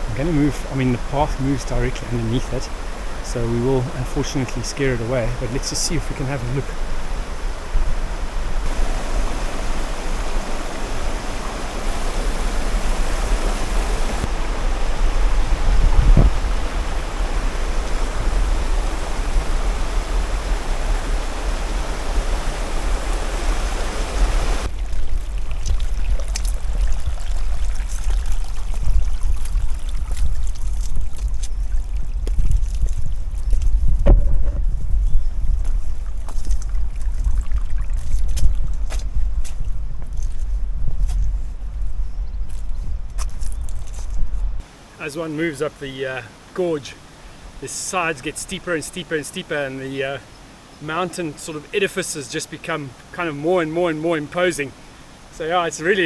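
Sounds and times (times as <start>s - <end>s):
stream rushing over rocks: 0.0s - 33.6s
wind rumbling on microphone: 0.0s - 44.6s.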